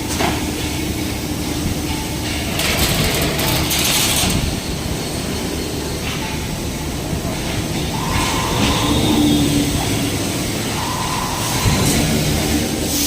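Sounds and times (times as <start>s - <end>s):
folding machine rumbling: 0.0s - 12.9s.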